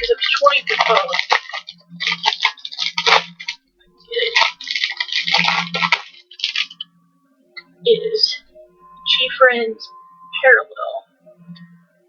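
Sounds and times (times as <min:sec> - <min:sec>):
packaging crinkling and rustling: 0:00.0 - 0:03.6, 0:04.2 - 0:06.8.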